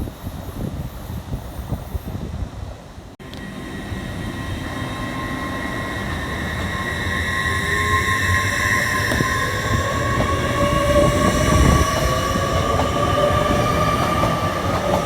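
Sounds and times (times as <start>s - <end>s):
high whine: 3.2s - 15.0s
train approaching: 3.2s - 15.0s.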